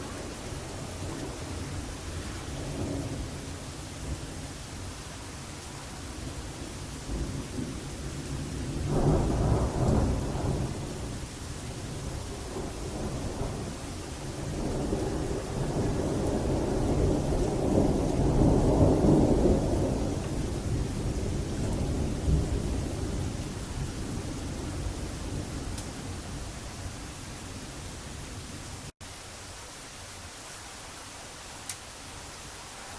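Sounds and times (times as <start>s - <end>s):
steady rain: 0.0s - 32.9s
thunder rumbling: 7.0s - 28.8s.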